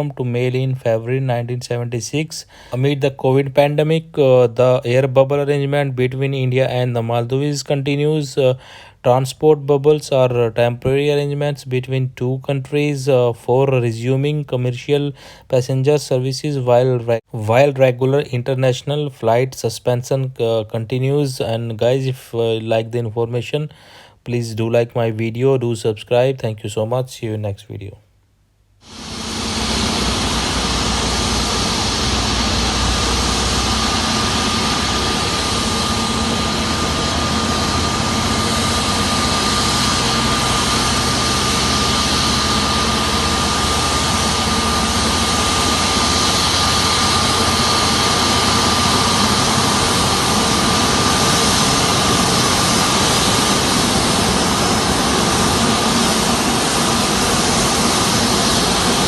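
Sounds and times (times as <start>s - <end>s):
jet engines rumbling: 0.0s - 10.4s, 28.8s - 59.0s
high-pitched jet whine: 28.8s - 59.0s.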